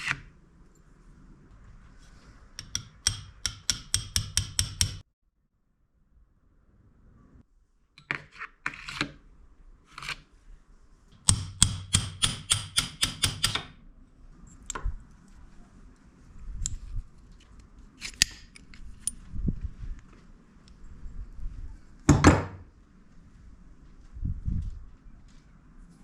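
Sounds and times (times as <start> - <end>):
tools clicking and tapping: 2.6 - 5.1, 11.2 - 13.8.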